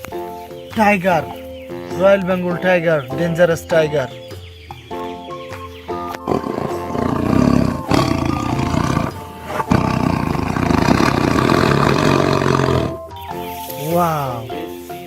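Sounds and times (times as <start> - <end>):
background music: 0.0 - 15.0
tiger roaring: 6.2 - 13.1.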